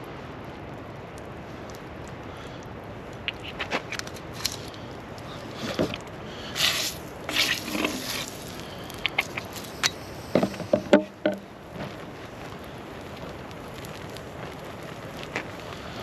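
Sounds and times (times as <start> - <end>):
steady background hiss: 0.0 - 16.0
short scraping rustles: 6.6 - 11.0.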